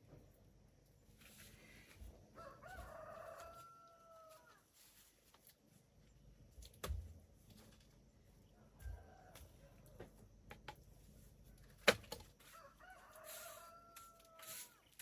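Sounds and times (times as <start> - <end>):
faint rooster crowing: 2.3 - 5.0, 8.4 - 10.2, 12.4 - 15.0.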